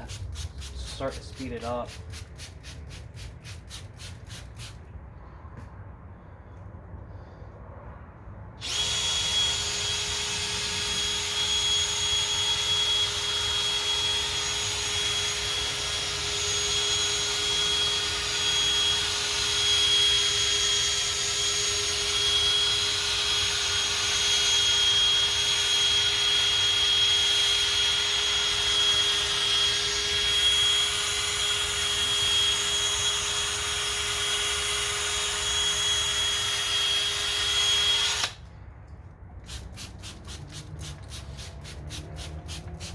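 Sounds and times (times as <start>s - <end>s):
power drill motor whine: 8.6s - 38.5s.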